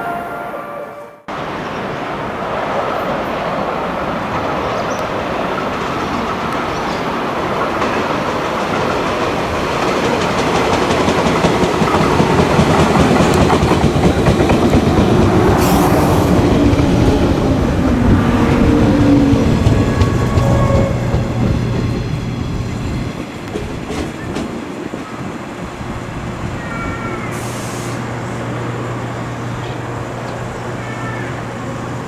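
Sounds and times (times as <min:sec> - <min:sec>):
train wheels clattering over rail joints: 0:04.3 - 0:15.1.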